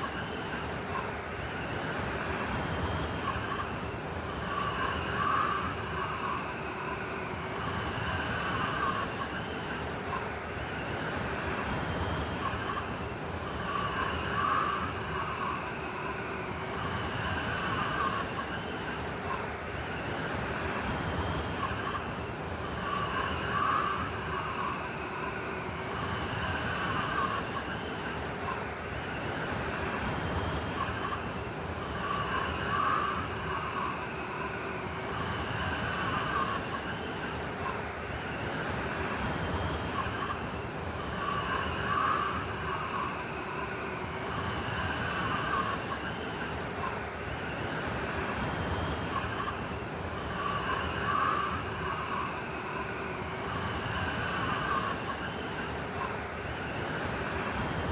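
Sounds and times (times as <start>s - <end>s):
howling blizzard wind: 0.0s - 57.9s.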